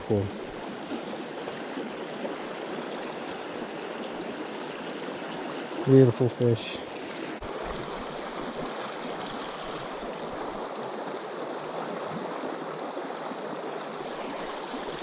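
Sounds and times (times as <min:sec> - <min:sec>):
stream babbling over rocks: 0:00.0 - 0:15.0.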